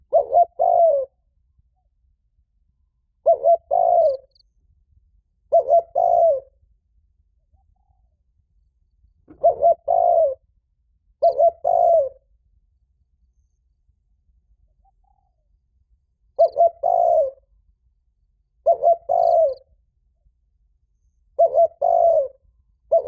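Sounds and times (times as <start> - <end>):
dove cooing: 0.0 - 1.2, 3.2 - 4.3, 5.5 - 6.6, 9.3 - 10.4, 11.2 - 12.2, 16.4 - 17.4, 18.6 - 19.7, 21.4 - 23.0.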